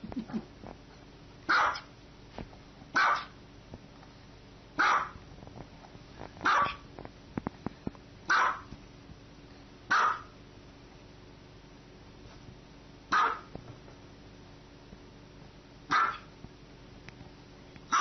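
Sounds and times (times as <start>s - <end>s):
small dog barking: 1.5s - 1.9s, 2.9s - 3.4s, 4.8s - 5.2s, 6.4s - 6.8s, 8.3s - 8.7s, 9.9s - 10.4s, 13.1s - 13.5s, 15.9s - 16.3s.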